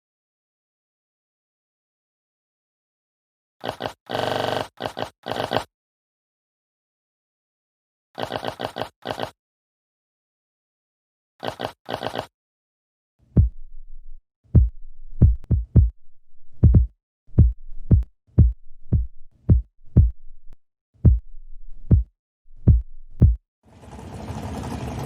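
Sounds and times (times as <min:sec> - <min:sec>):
short deep thumps: 0:14.6 - 0:16.0, 0:16.6 - 0:20.2, 0:22.7 - 0:23.4.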